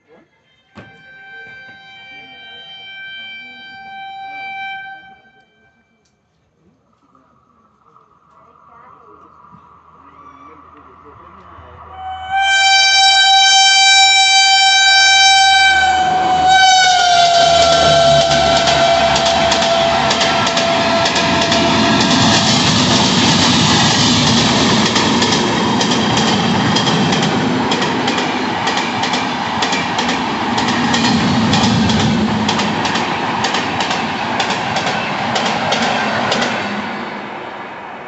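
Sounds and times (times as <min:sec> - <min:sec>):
locomotive horn: 0:00.6 - 0:06.0, 0:11.9 - 0:23.8
train wheels clattering over rail joints: 0:17.1 - 0:36.8.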